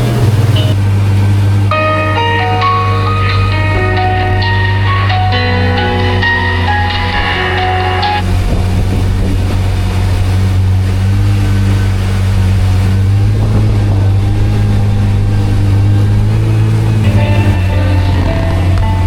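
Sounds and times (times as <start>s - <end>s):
jet ski engine droning: 0.0s - 19.0s.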